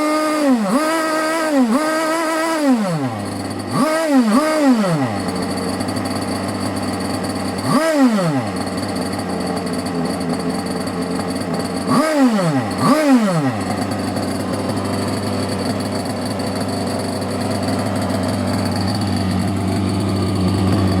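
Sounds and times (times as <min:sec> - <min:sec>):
engine idling with throttle blips: 0:00.0 - 0:21.0.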